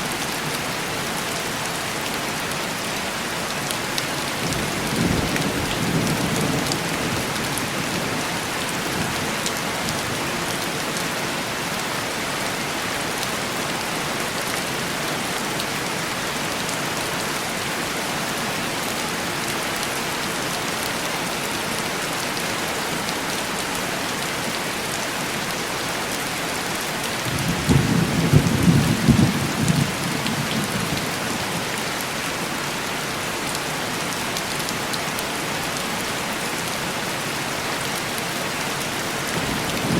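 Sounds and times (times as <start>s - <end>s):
heavy rain on window glass: 3.4s - 11.2s, 27.1s - 32.2s, 35.7s - 39.9s
thunder rumbling: 27.3s - 31.0s.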